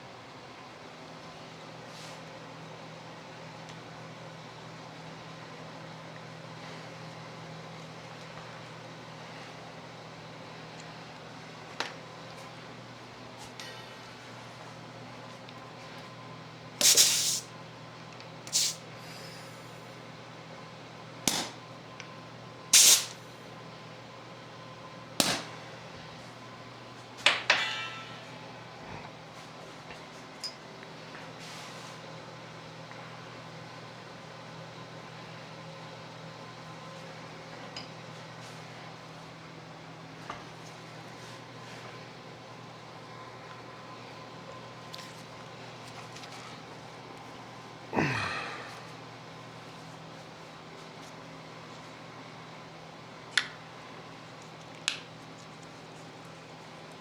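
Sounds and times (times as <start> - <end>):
low machine hum: 0.0 - 57.0
even hiss: 16.8 - 17.5, 18.5 - 19.6, 22.8 - 23.2
metal-on-metal clanks: 27.3 - 28.4.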